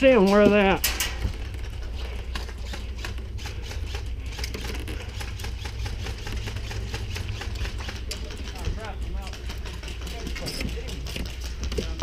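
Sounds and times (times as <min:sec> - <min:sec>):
airsoft guns firing: 0:02.4 - 0:08.7.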